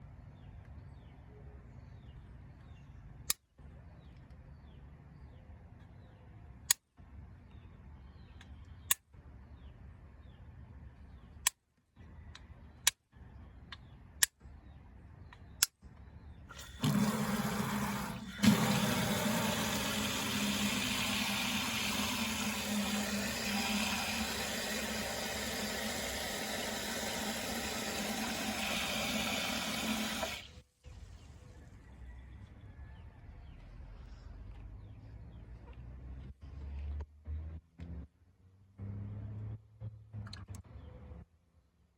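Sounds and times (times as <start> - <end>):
rush of running water: 16.6 - 30.5.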